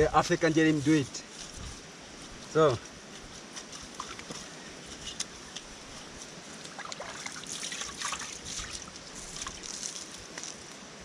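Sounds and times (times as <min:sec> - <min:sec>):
water splashing and trickling: 0:03.8 - 0:10.5.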